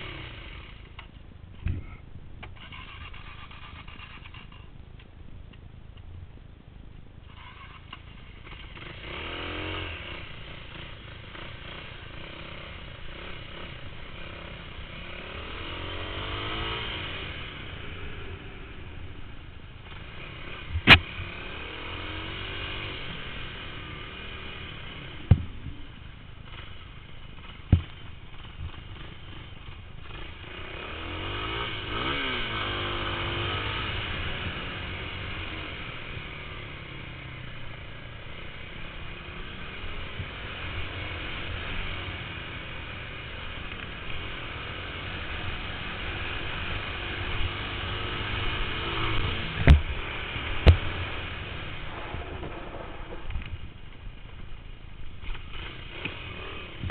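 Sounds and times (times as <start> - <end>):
motorcycle engine revving: 0.0 - 2.0, 2.6 - 4.7, 7.3 - 56.9.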